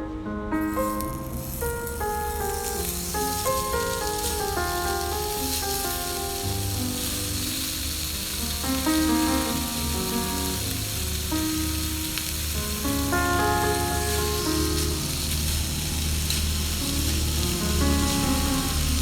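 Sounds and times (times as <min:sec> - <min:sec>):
background music of held notes: 0:00.0 - 0:19.0
food sizzling in a pan: 0:00.6 - 0:19.0.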